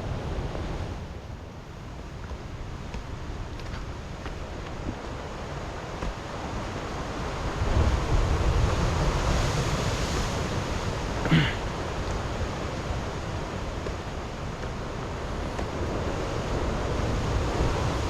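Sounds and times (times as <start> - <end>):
water rushing: 4.3 - 18.0.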